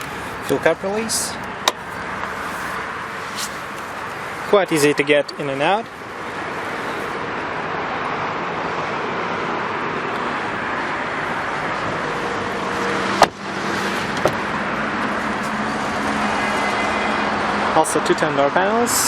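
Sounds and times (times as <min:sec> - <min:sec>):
traffic noise: 0:00.0 - 0:19.0
car door clunk: 0:01.6 - 0:02.3, 0:13.1 - 0:15.1.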